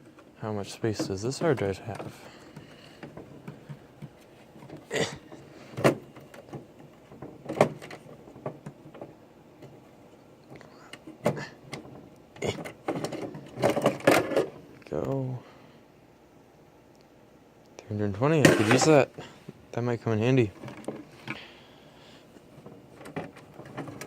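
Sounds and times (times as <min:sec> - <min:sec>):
clicks and knocks of computer parts: 0:00.0 - 0:09.8, 0:10.4 - 0:14.8, 0:18.4 - 0:19.1, 0:20.6 - 0:21.5, 0:22.4 - 0:24.0.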